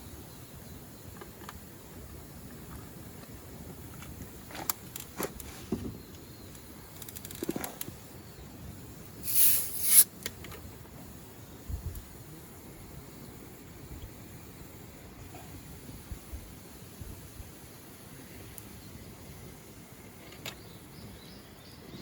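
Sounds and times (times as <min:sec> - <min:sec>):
loud hissing scrape: 0:09.2 - 0:10.2.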